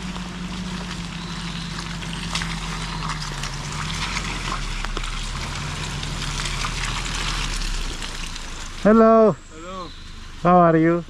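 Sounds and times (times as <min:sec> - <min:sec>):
motorcycle engine running: 0:00.0 - 0:11.0
rain and wet road hiss: 0:00.0 - 0:11.0.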